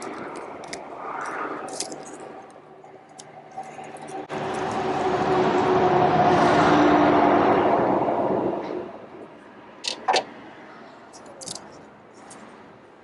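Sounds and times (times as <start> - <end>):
vehicle passing by: 3.8 - 9.0.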